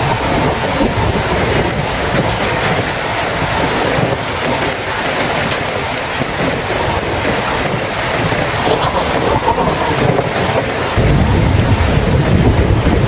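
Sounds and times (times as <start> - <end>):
heavy rain falling: 0.0 - 13.0
low thunder rumble: 7.7 - 13.0.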